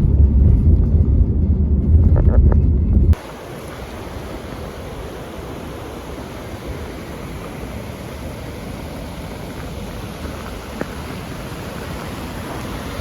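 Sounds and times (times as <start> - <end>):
flowing water rushing: 3.2 - 13.0.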